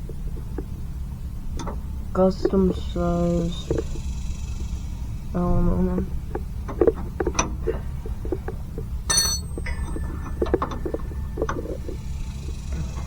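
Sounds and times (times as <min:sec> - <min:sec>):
metal tools clinking: 0:09.1 - 0:09.8
ringing metal clink: 0:09.1 - 0:09.9.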